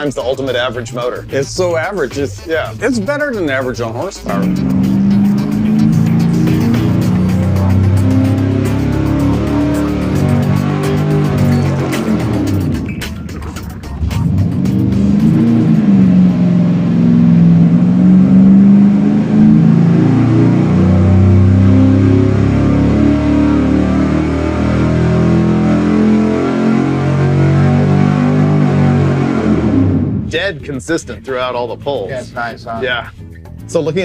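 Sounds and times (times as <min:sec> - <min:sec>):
background music: 0:00.0 - 0:34.0
engine running hard on a dyno: 0:04.3 - 0:12.9, 0:14.2 - 0:30.3.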